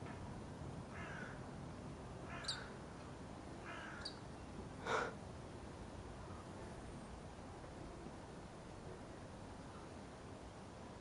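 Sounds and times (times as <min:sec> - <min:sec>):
crow-like rasping calls: 0:00.9 - 0:01.4, 0:02.2 - 0:02.8, 0:03.6 - 0:04.2.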